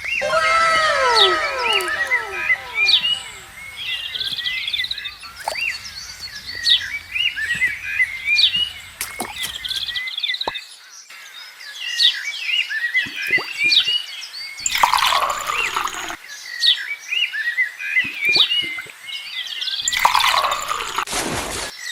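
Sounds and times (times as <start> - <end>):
birds chirping: 0.0 - 10.0
falling whistled bird notes: 0.0 - 10.0.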